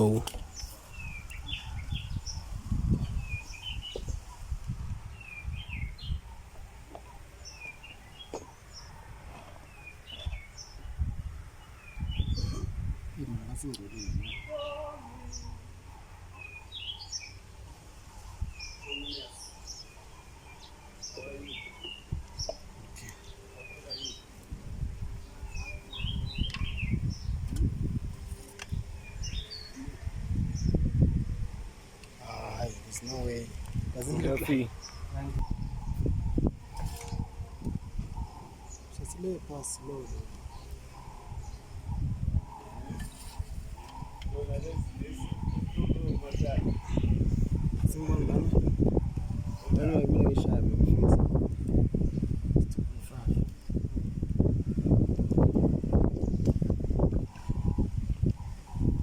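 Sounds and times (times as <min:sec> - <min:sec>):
bird chirping: 0:00.0 - 0:04.4, 0:05.1 - 0:17.5, 0:18.1 - 0:24.4, 0:25.2 - 0:30.9, 0:34.0 - 0:50.6.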